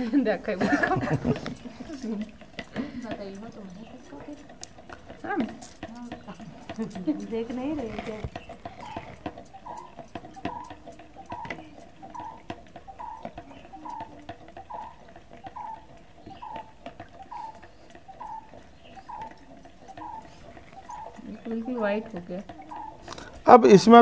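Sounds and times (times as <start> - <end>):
faint clicks: 0.0 - 23.6
bird calling falling note: 8.1 - 23.4.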